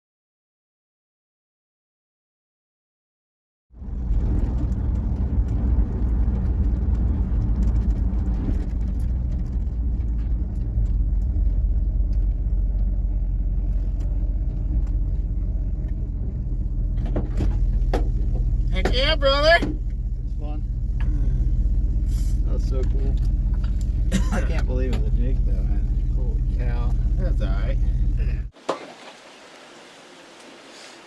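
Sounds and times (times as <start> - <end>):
engine and road noise rumble: 3.7 - 31.0
light clicks and rattles: 4.3 - 16.1.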